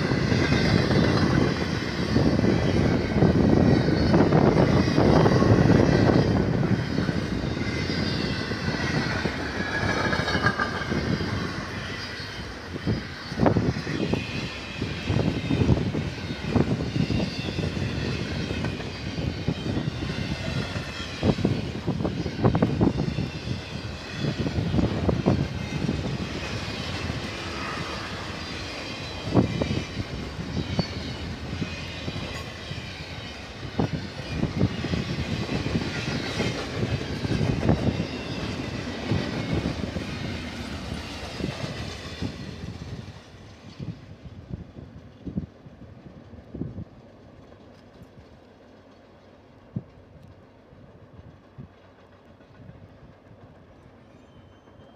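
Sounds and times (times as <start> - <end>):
train cars clunking: 0.0 - 42.9
freight train rumbling: 0.0 - 54.9.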